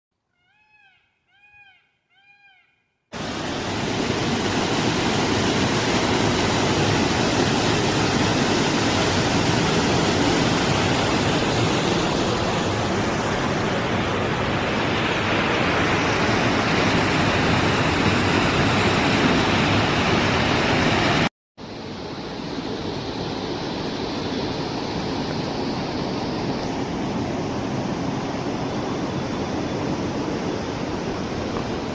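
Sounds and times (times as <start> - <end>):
waterfall rushing: 3.2 - 21.3.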